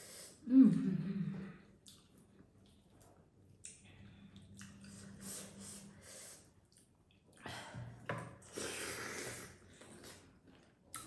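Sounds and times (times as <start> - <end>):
wet eating sounds: 1.8 - 5.7
soft breaths or sniffs: 4.9 - 6.6.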